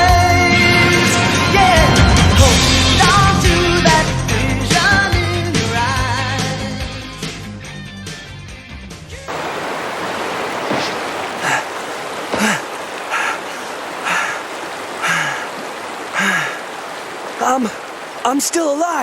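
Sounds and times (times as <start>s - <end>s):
rush of falling water: 9.3s - 19.0s
man gasping for breath: 12.4s - 16.8s.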